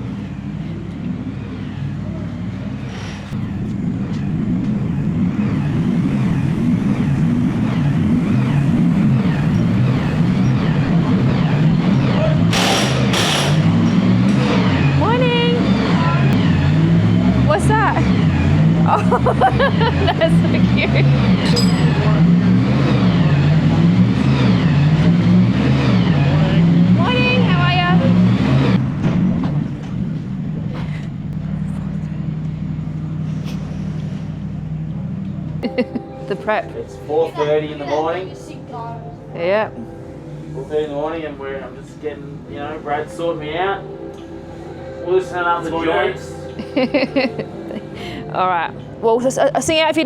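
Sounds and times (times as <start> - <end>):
car driving rumble: 0.0 - 37.1
vehicle engine running: 0.0 - 37.1.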